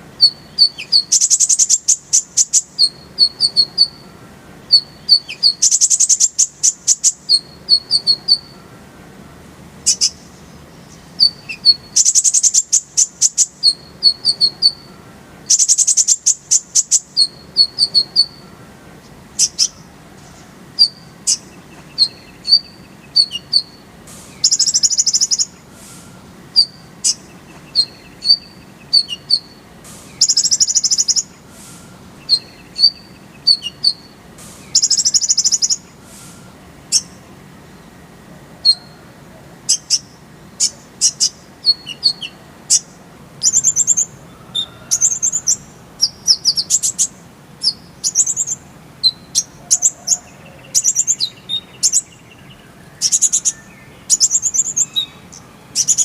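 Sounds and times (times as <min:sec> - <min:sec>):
bird song of varied notes: 0:00.0 - 0:56.0
bird chirps: 0:00.2 - 0:38.0, 0:38.6 - 0:39.1, 0:39.7 - 0:56.0
bird rattling trill: 0:24.4 - 0:25.5, 0:34.7 - 0:35.8.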